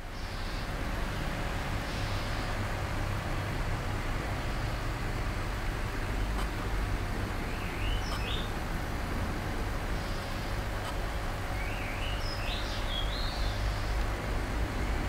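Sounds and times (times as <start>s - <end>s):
small bird chirping: 7.4s - 8.6s, 11.5s - 14.1s.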